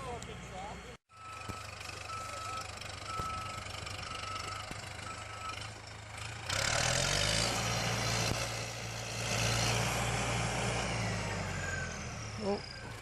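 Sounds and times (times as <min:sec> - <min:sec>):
beeping tone: 0:01.1 - 0:05.7
vehicle engine revving: 0:02.0 - 0:13.0.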